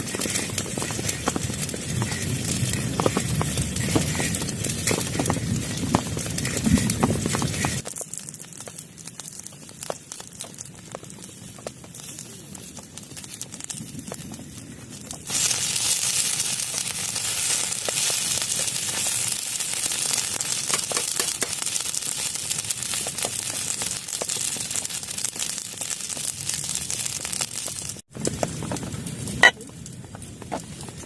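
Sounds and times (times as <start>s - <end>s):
heavy rain on a plastic tarp: 0.0s - 7.8s, 15.2s - 28.1s.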